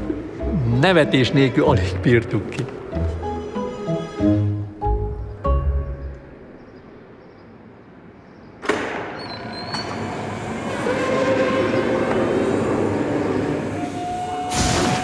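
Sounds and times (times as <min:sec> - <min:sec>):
train running on rails: 0:09.3 - 0:15.0.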